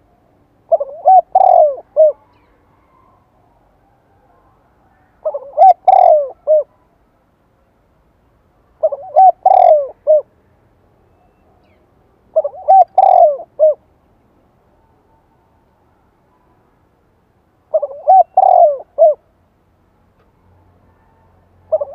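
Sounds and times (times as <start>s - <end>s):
dove cooing: 0.7s - 3.2s, 4.9s - 6.8s, 8.8s - 10.3s, 12.3s - 13.8s, 17.7s - 19.2s, 21.7s - 21.9s.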